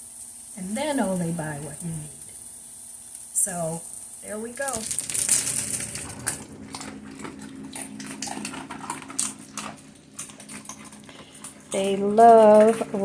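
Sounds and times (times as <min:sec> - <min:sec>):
faint steady hum: 0:00.0 - 0:13.0
animals crunching raw pasta: 0:04.7 - 0:13.0.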